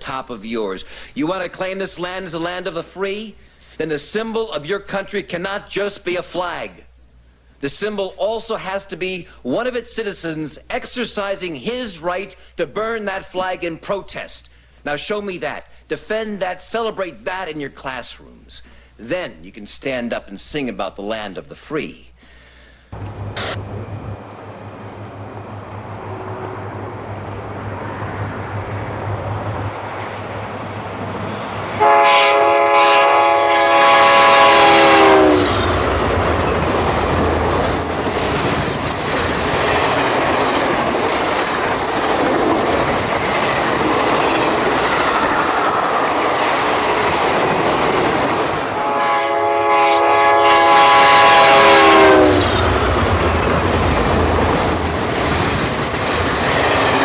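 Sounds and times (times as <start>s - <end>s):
train wheels rumbling on rails: 23.0s - 49.0s, 50.6s - 57.0s
multi-note train horn: 26.0s - 27.0s, 31.8s - 35.8s, 48.7s - 52.7s.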